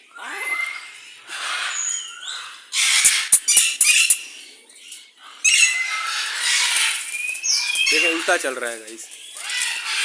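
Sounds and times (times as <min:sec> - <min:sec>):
macaws squawking harshly: 0:00.2 - 0:04.5, 0:05.2 - 0:10.0.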